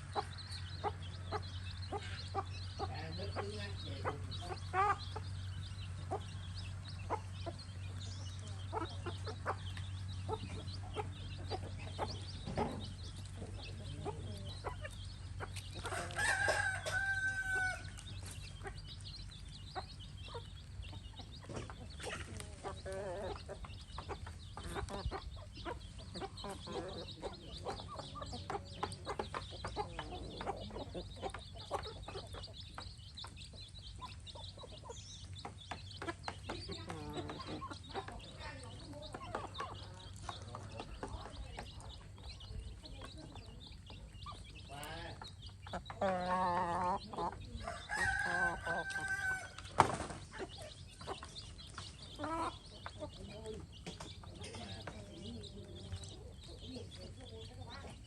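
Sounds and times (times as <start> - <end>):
chickens clucking: 0.0 - 58.0
rooster crowing: 15.9 - 17.9, 47.6 - 49.6.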